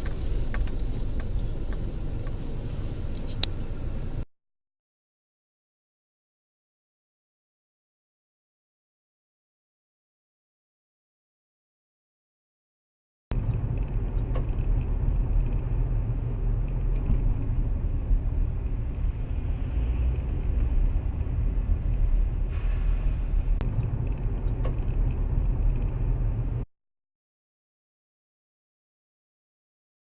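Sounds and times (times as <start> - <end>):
car engine and road noise: 0.0 - 4.3, 13.3 - 26.7.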